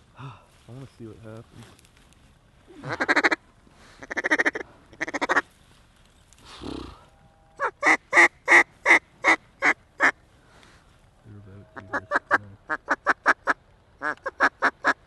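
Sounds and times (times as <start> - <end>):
duck call quacks: 2.8 - 3.4, 4.0 - 5.4, 11.7 - 15.0.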